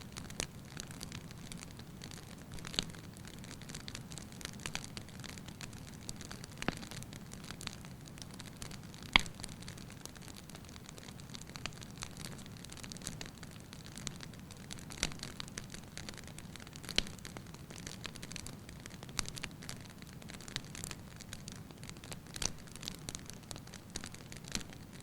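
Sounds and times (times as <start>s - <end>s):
firewood crackling and popping: 0.0s - 25.0s.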